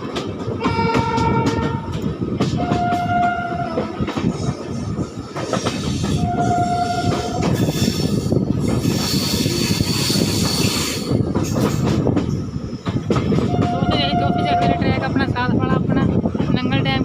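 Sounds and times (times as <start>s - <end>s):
train rumbling: 0.0s - 17.0s
train horn blasts: 0.6s - 1.9s, 2.6s - 3.9s, 6.1s - 7.5s, 13.5s - 14.9s.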